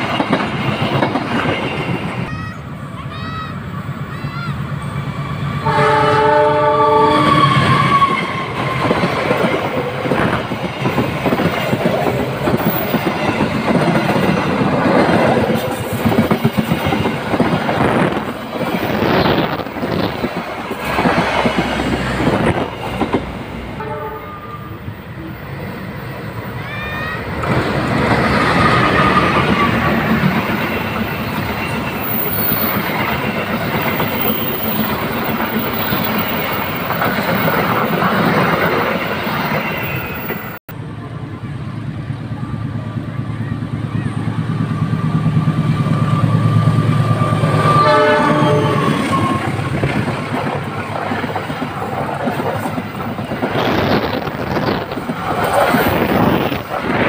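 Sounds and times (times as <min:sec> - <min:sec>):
train wheels rumbling on rails: 0:00.0 - 0:57.0
train horn tones: 0:05.6 - 0:08.6, 0:23.8 - 0:25.3, 0:47.1 - 0:49.6.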